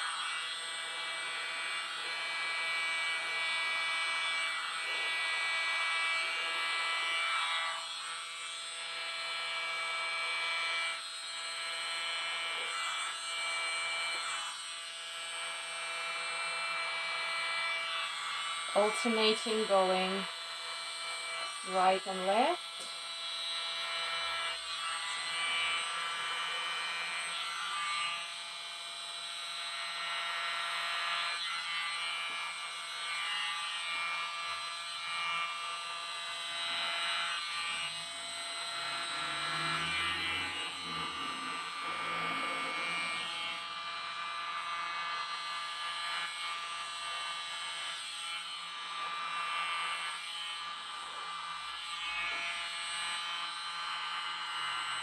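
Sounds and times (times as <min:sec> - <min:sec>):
electric blower whining: 0:18.7 - 0:20.2, 0:21.4 - 0:22.9, 0:36.7 - 0:44.2.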